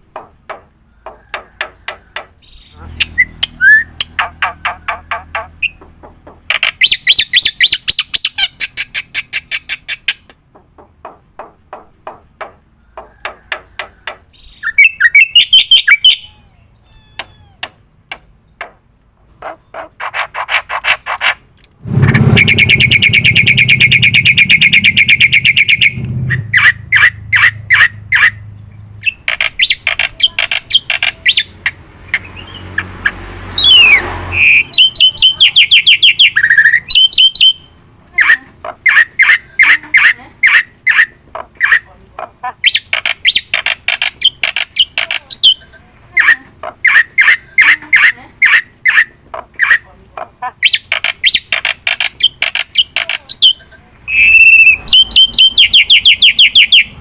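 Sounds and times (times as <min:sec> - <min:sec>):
bird sliding whistle: 0:21.9 - 0:27.5, 0:33.4 - 0:35.2.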